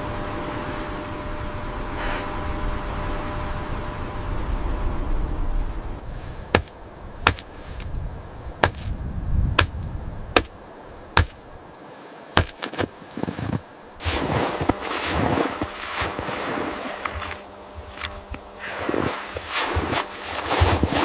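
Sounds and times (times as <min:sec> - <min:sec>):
sharp chopping strikes: 0:06.5 - 0:07.5, 0:08.6 - 0:09.8, 0:10.4 - 0:10.6, 0:11.2 - 0:11.4, 0:12.4 - 0:12.9
rushing noise: 0:13.4 - 0:21.0.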